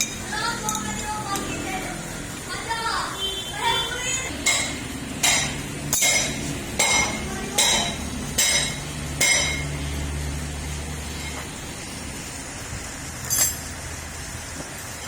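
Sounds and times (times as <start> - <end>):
hammer striking metal: 4.4 - 9.8.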